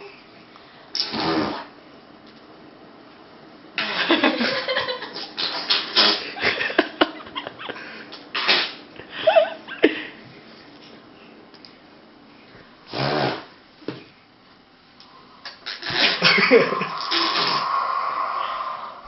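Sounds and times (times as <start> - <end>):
raspberry blown with lips: 1.0 - 1.7, 15.4 - 19.0.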